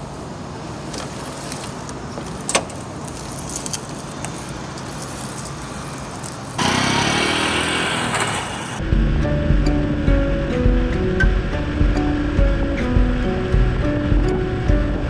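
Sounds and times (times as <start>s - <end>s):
motorcycle engine running: 6.6s - 15.0s.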